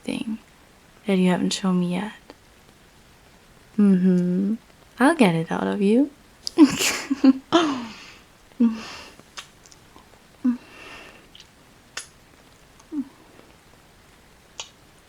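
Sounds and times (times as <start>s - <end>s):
soft hum or breath: 7.5s - 9.2s, 9.9s - 11.4s, 12.8s - 13.6s
wet lip smacks: 9.2s - 10.1s, 11.3s - 12.2s, 14.6s - 14.8s
small mouth clicks: 9.2s - 13.6s, 14.6s - 14.8s.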